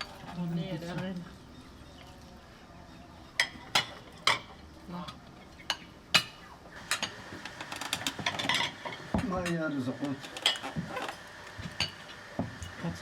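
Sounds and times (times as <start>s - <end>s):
hard objects clicking and knocking: 5.7s - 12.7s.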